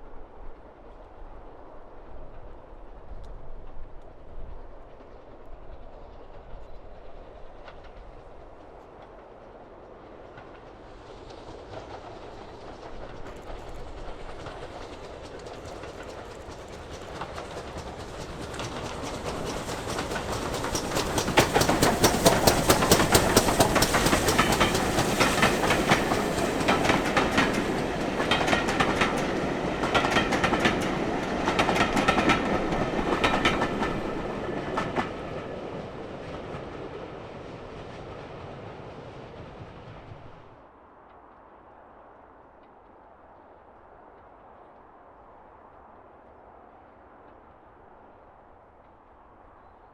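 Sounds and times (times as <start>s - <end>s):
train passing: 0.0s - 49.9s
wheels clicking over rail joints: 10.3s - 37.0s.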